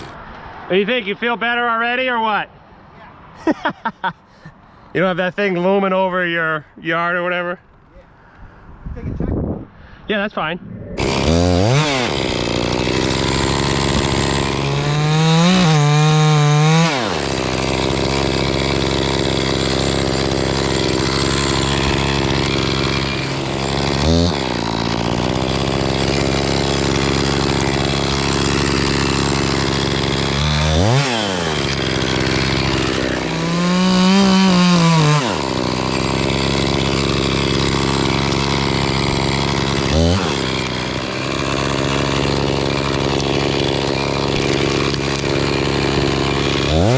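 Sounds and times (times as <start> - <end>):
chainsaw idling and revving: 0.0 - 0.2, 11.0 - 46.9.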